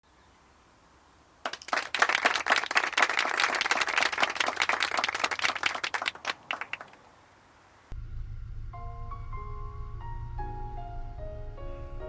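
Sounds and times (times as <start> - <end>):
crowd applauding: 1.4 - 7.5.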